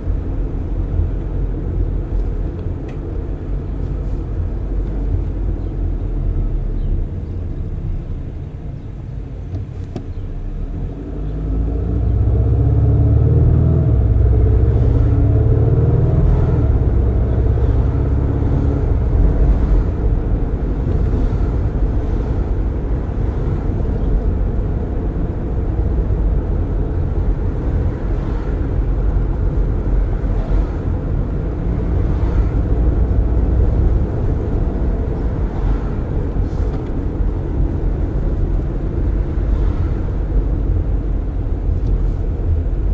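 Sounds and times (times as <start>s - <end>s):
wind through open windows: 0.0s - 42.9s
car engine accelerating: 10.2s - 42.9s.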